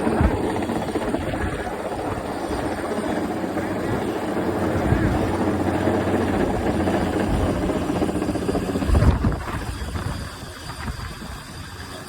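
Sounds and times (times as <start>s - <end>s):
helicopter rotor and engine: 0.0s - 12.0s.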